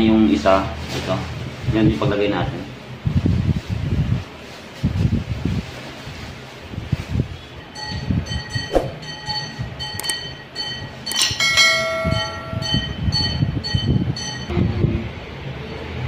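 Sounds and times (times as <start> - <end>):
ringing tones: 7.7 - 14.5
bell-like chime: 7.8 - 14.5
metal parts knocking and clinking: 9.4 - 12.9
sharp click: 10.0 - 10.2.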